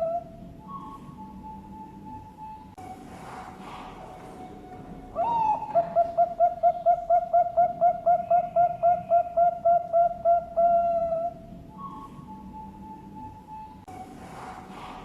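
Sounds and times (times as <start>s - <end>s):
dove cooing: 0.0s - 2.2s, 3.6s - 13.6s.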